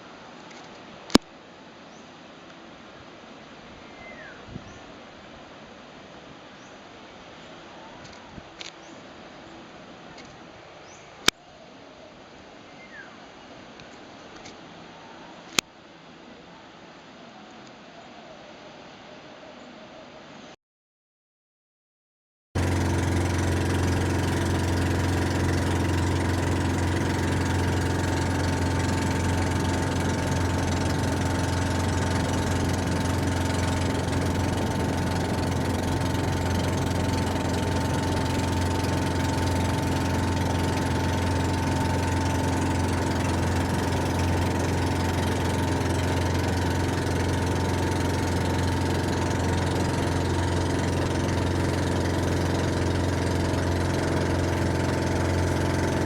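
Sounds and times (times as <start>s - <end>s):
engine running steadily: 22.6s - 56.0s.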